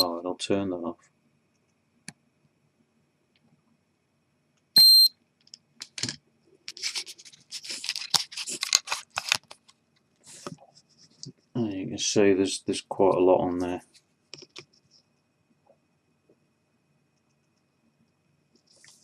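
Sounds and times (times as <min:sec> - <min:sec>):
short high electronic beep: 0:04.8 - 0:05.1
camera handling scratching and clicking: 0:05.8 - 0:09.7.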